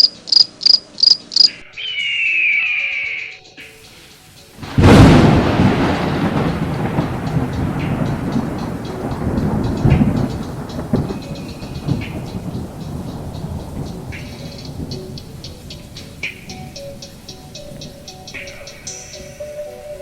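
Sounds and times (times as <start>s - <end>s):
sharp crackles: 0.0s - 19.4s
rain-like hiss: 3.1s - 20.0s
thunder crack and rumble: 4.6s - 19.2s.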